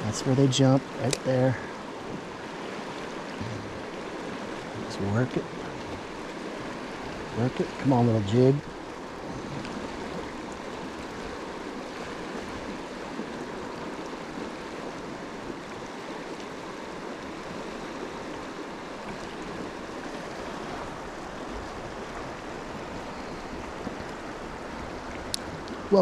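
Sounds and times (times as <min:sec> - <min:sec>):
flowing stream water: 0:00.0 - 0:26.0
faint ticks: 0:25.1 - 0:25.8.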